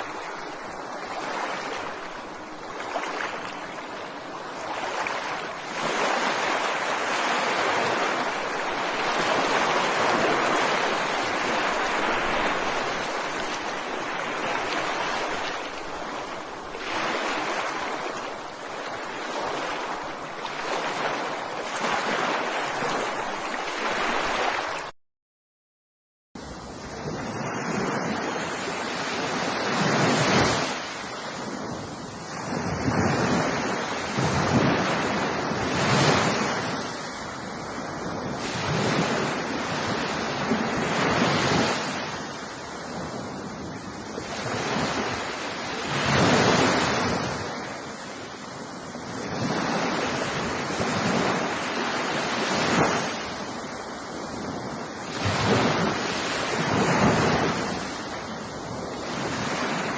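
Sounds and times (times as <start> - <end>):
ocean waves breaking on beach: 0.0 - 24.9, 26.4 - 59.9.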